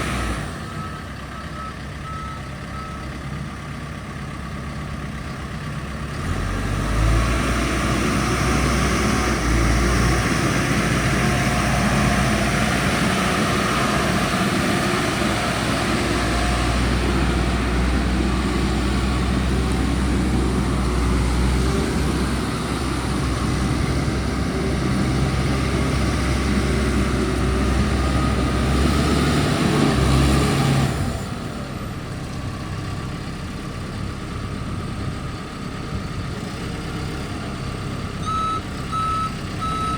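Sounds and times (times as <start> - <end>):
diesel engine running hard: 0.0 - 39.9.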